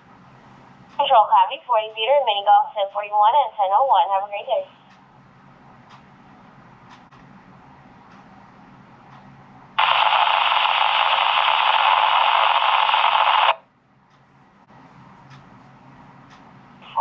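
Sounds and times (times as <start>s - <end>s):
radio static from scanner speaker: 1.0s - 4.8s, 9.8s - 13.6s.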